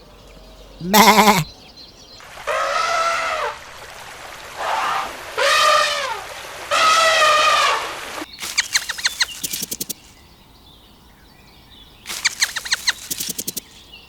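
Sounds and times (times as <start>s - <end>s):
high-pitched animal calls: 0.8s - 1.5s, 12.1s - 13.4s.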